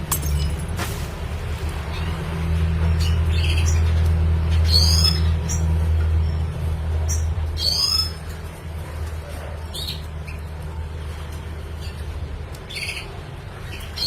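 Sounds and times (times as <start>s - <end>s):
bird chirping and twittering: 1.7s - 8.6s, 9.6s - 10.8s, 11.6s - 14.0s.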